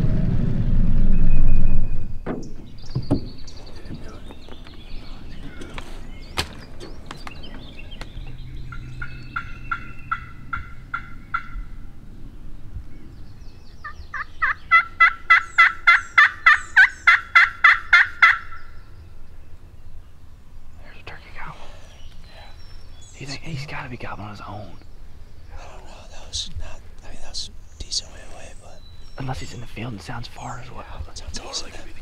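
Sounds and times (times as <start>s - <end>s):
turkey yelping: 4.9s - 11.9s, 13.8s - 18.8s.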